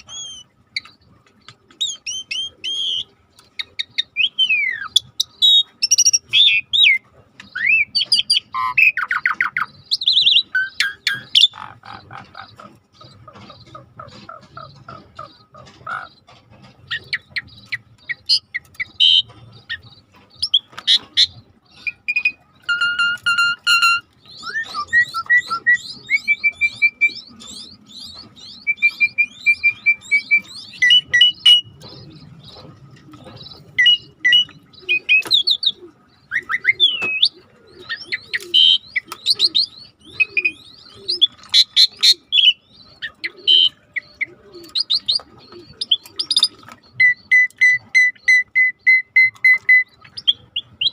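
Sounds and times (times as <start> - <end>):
low falling bird call: 16.9 - 50.9.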